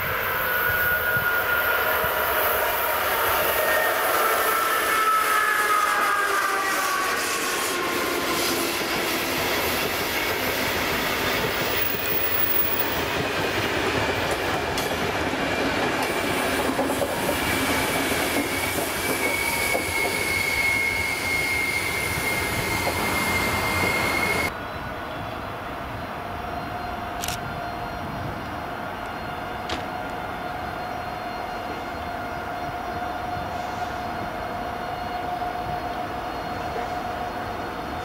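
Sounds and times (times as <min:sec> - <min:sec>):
high wheel squeal: 0:00.0 - 0:13.0, 0:17.2 - 0:24.5
train wheels rumbling on rail: 0:00.0 - 0:24.6.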